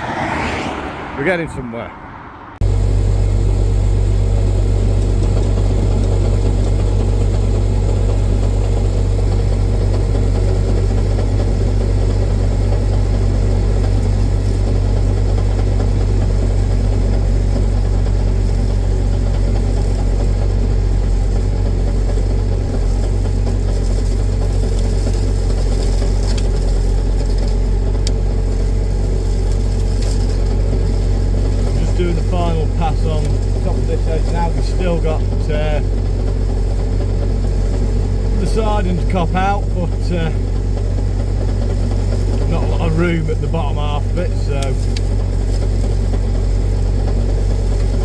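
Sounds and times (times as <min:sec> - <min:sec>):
tractor engine droning under load: 0:00.0 - 0:48.0
hedgecutter working: 0:03.5 - 0:48.0.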